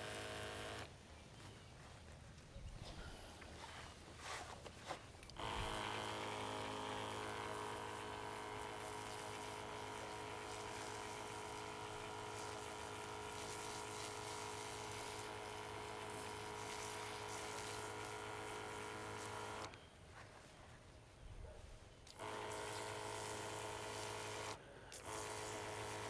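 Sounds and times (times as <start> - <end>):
small electric motor humming: 0.0 - 0.9, 5.3 - 19.8, 22.1 - 26.0.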